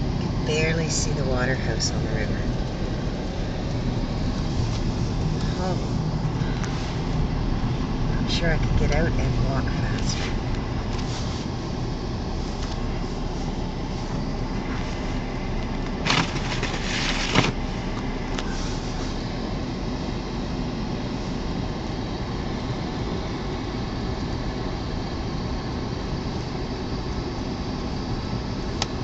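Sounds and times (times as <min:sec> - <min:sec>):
blizzard wind rushing: 0:00.0 - 0:29.0
car running noise: 0:00.0 - 0:29.0.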